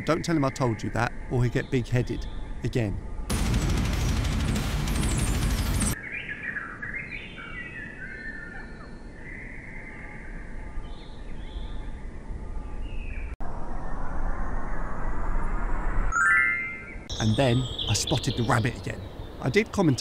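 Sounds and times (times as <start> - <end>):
birds chirping and whistling: 4.9 - 12.0, 16.1 - 20.0.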